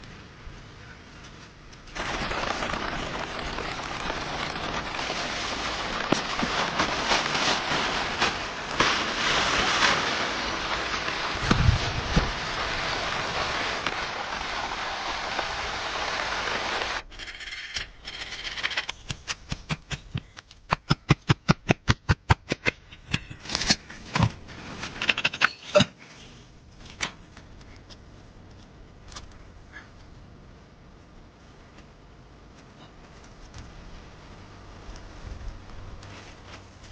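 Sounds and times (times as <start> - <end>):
steady rushing noise: 2.0 - 17.0.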